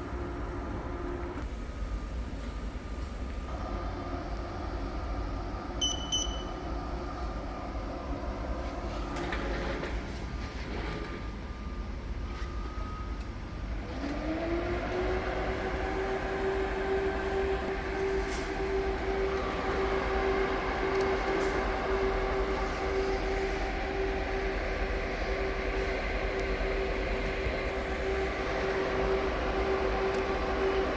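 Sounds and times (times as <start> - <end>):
steady machine noise: 13.5 - 30.9
whine rising in pitch: 14.4 - 30.9.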